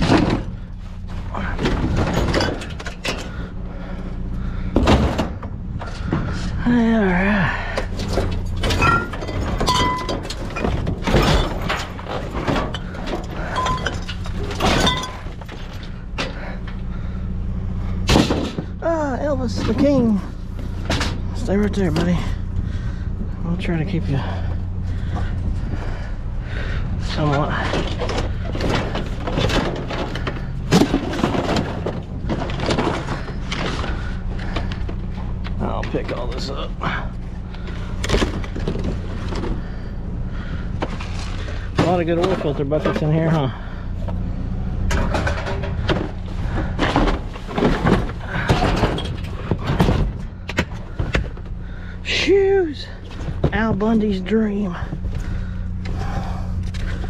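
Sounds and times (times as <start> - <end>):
junk clattering in a dumpster: 0.0 - 57.0
steady low hum: 0.0 - 57.0.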